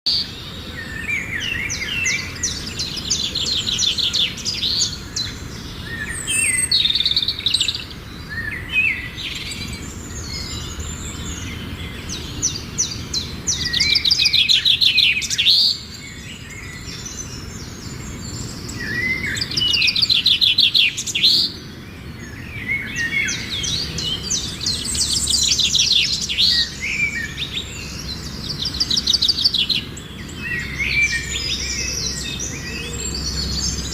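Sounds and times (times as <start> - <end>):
birds chirping trills: 0.1 - 33.9
steady low background noise: 0.1 - 33.9.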